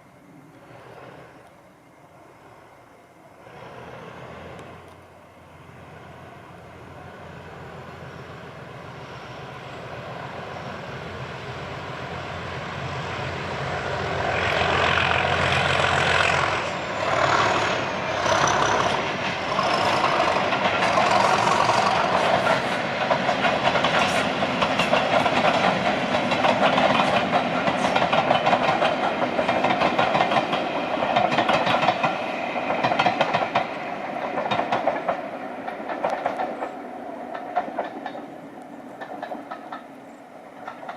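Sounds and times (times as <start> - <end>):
diesel locomotive engine: 0.0 - 40.9
train wheels clattering over rail joints: 14.3 - 38.4, 39.0 - 40.9.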